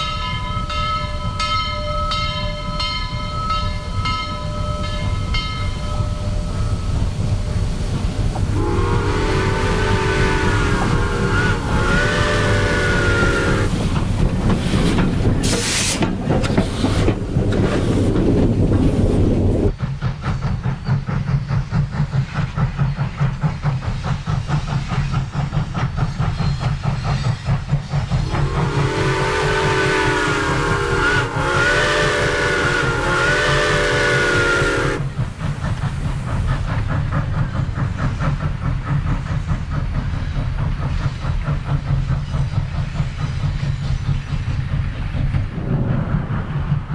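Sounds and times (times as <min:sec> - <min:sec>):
steam whistle blasts: 0:08.5 - 0:13.8, 0:28.2 - 0:35.1.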